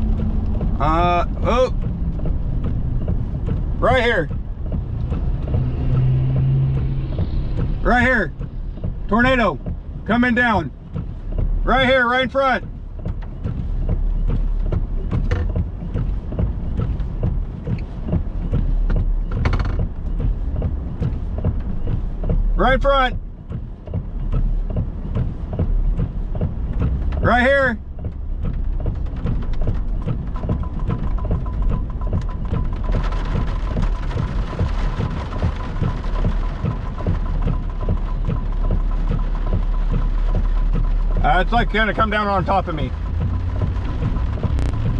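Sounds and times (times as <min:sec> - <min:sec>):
heavy rain: 0:00.0 - 0:44.9
low rumble: 0:00.0 - 0:44.9
strong wind buffeting a vehicle: 0:00.0 - 0:44.9
light ticks and creaks: 0:13.0 - 0:22.4, 0:23.4 - 0:44.9.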